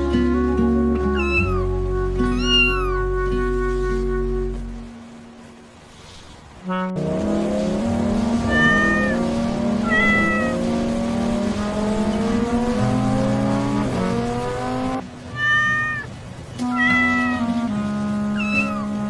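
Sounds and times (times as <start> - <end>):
background music: 0.0 - 5.6, 6.6 - 15.3, 16.6 - 19.0
cat meowing: 1.1 - 3.1, 8.4 - 10.6, 15.3 - 17.4, 18.4 - 18.9.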